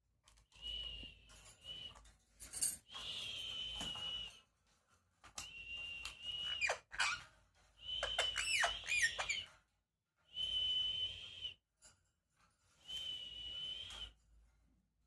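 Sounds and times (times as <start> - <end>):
parrot whistling: 5.5 - 9.5.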